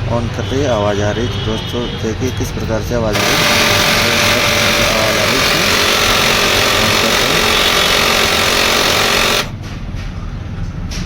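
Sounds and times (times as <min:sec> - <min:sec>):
printer grinding rasp: 0:03.1 - 0:09.6.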